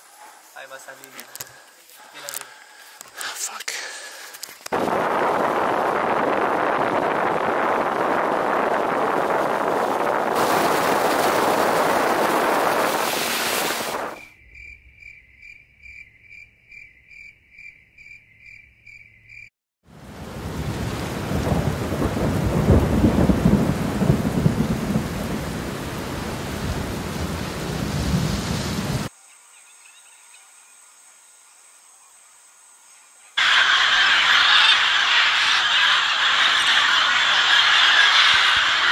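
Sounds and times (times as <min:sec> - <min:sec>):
wind rushing: 0:04.7 - 0:14.3, 0:20.0 - 0:29.1, 0:33.4 - 0:38.9
heavy rain: 0:04.8 - 0:14.2, 0:19.9 - 0:29.1, 0:33.4 - 0:38.9
rumbling thunder: 0:04.8 - 0:14.2, 0:20.0 - 0:29.1
high pulsed animal call: 0:33.4 - 0:38.9.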